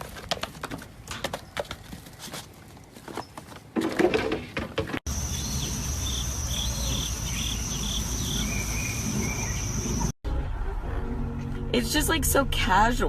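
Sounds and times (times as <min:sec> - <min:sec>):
insects droning: 0:05.1 - 0:10.1.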